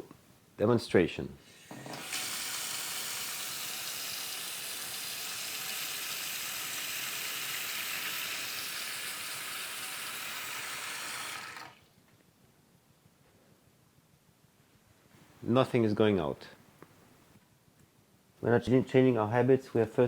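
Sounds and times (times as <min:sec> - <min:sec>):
tap running into sink: 0:01.7 - 0:02.9.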